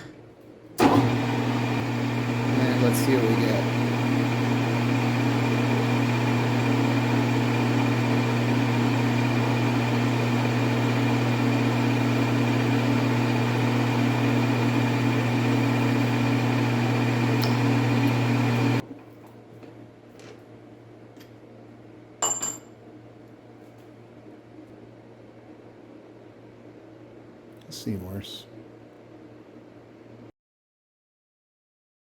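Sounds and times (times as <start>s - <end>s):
metal lathe humming: 0.8s - 18.8s.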